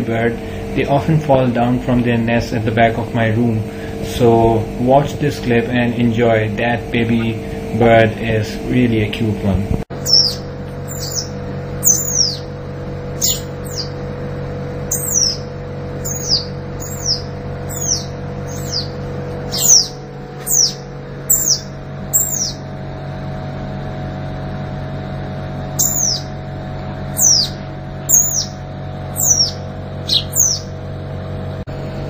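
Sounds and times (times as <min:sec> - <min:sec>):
steady low hum: 0:00.0 - 0:32.0
fledgling bird chirping: 0:09.9 - 0:12.6, 0:13.2 - 0:14.0, 0:14.9 - 0:22.7, 0:25.8 - 0:26.4, 0:27.1 - 0:30.8.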